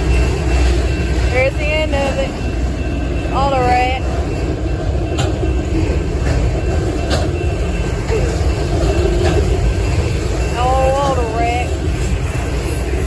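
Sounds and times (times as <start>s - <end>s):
freight train rumbling past: 0.0s - 13.0s
train wheels clanking: 0.0s - 13.0s.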